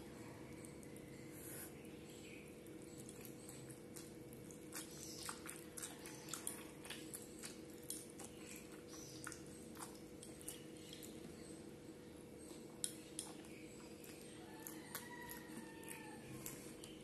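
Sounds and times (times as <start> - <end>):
person chewing: 2.4 - 11.3, 12.5 - 17.0.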